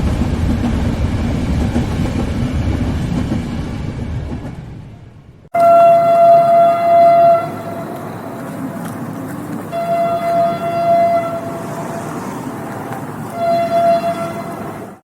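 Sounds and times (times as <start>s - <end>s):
moving train rumble: 0.0s - 15.0s
train horn blasts: 5.5s - 8.8s, 9.7s - 12.4s, 13.3s - 14.9s.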